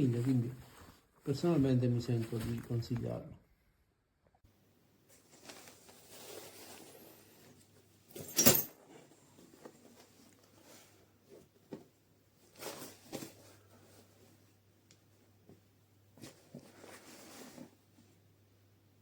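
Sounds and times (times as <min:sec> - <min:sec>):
fabric backpack rustling: 0:05.1 - 0:11.8.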